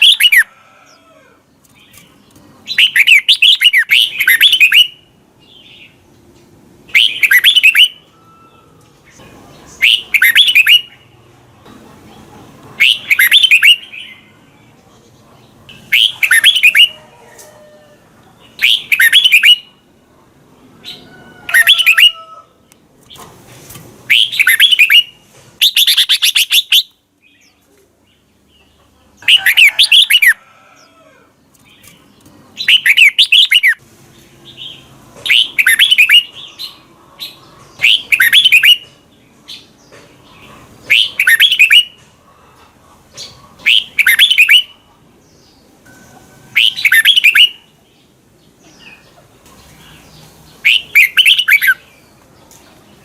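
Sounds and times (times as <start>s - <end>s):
bird warbling song: 0.0s - 0.5s, 1.6s - 6.0s, 6.9s - 8.2s, 9.1s - 11.0s, 12.8s - 14.4s, 15.7s - 17.5s, 18.4s - 19.8s, 24.1s - 30.9s, 31.6s - 33.8s, 34.4s - 42.0s, 43.1s - 53.0s.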